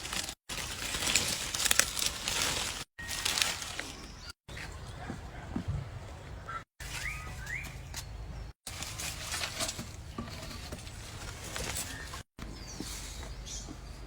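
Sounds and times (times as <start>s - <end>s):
bird chirps: 6.5s - 8.5s.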